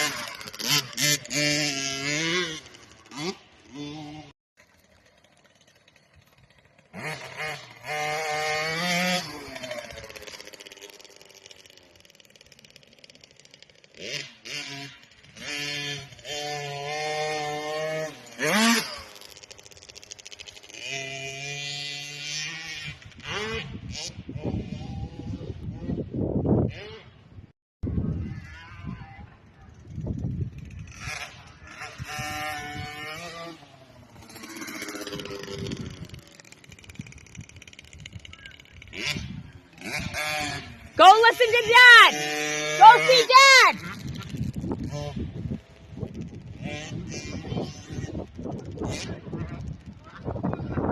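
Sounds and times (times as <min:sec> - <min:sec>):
quieter second engine: 0:00.0 - 0:24.9
motocross bike engine revving: 0:00.0 - 0:25.3, 0:30.4 - 0:50.3.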